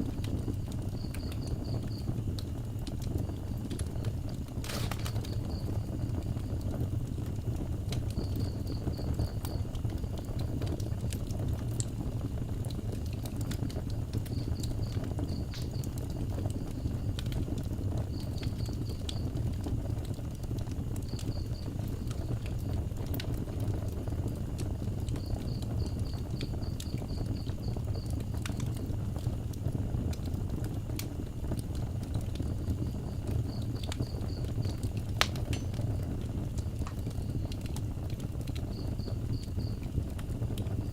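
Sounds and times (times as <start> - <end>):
wood fire crackling: 0.0 - 40.9
cricket chirping: 0.3 - 2.3, 3.2 - 7.2, 8.1 - 10.9, 14.1 - 19.7, 20.5 - 22.8, 24.3 - 28.9, 32.5 - 37.6, 38.5 - 40.9.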